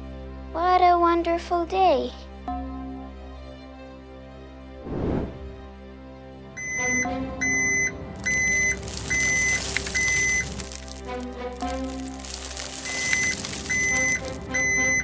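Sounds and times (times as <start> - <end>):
cartoon background music: 0.1 - 4.0, 6.5 - 9.7, 10.5 - 15.0
whoosh: 4.8 - 5.6
high electronic beeps: 13.1 - 15.0.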